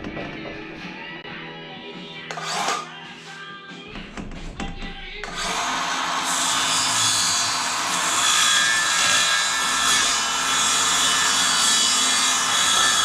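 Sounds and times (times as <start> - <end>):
power saw cutting wood: 2.3 - 2.9, 5.2 - 13.0.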